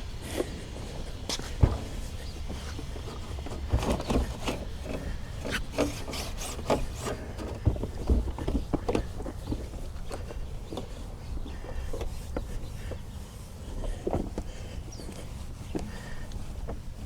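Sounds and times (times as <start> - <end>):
rubbing and scuffing strokes: 0.2 - 7.6
dull thump: 1.3 - 4.6.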